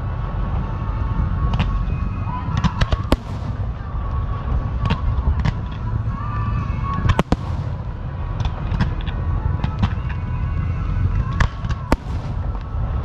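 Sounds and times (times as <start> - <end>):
low rumble: 0.0 - 13.0
firework cracks and pops: 2.6 - 4.2, 7.0 - 10.2, 11.3 - 13.0
firework bang: 2.9 - 4.1, 7.1 - 9.0, 11.9 - 12.8.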